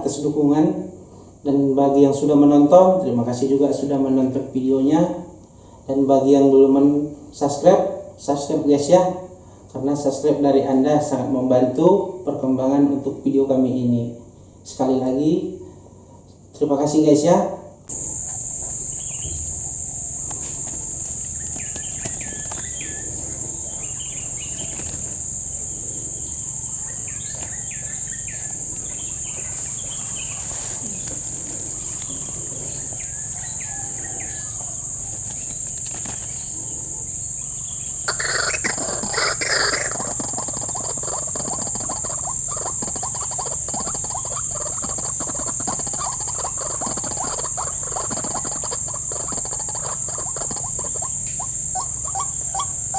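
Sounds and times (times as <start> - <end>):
bird calls: 17.9 - 52.9
high-pitched insect drone: 17.9 - 52.9.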